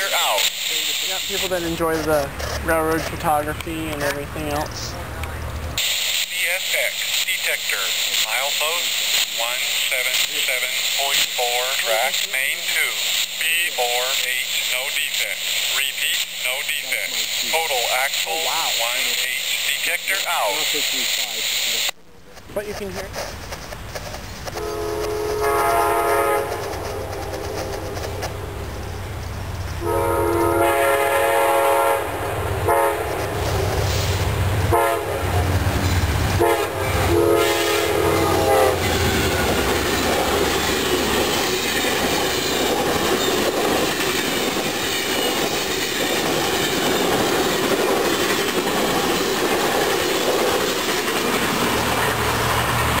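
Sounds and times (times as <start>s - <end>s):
train cars rumbling and clattering: 0.0s - 53.0s
train horn blasts: 24.6s - 28.6s, 29.8s - 33.4s, 34.7s - 35.5s, 36.4s - 39.4s.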